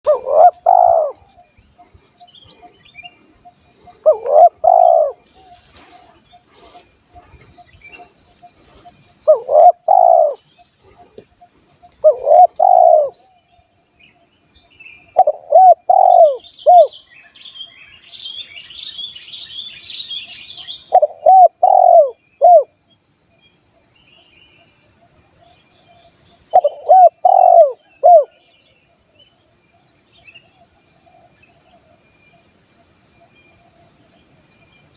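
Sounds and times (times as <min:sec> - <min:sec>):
high bird twittering: 0:00.1 - 0:11.2, 0:12.0 - 0:13.2, 0:15.0 - 0:22.7, 0:26.5 - 0:28.4
dove cooing: 0:00.1 - 0:13.3, 0:15.2 - 0:16.9, 0:20.9 - 0:22.7, 0:26.5 - 0:28.4
high insect trill: 0:00.1 - 0:34.9.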